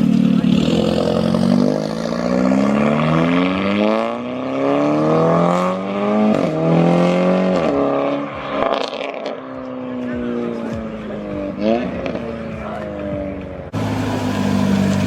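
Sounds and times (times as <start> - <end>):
car accelerating hard: 0.0 - 10.4, 13.7 - 15.0.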